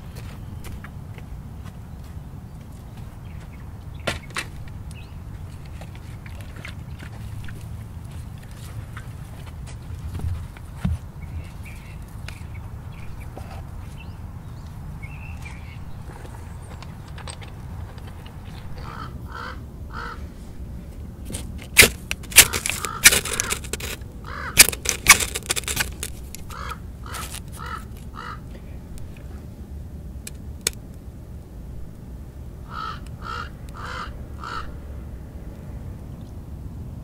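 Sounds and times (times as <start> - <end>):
bird calling: 18.4 - 20.2, 21.7 - 28.5, 32.7 - 34.8
dry sticks clattering and snapping: 21.3 - 24.0, 24.6 - 28.1.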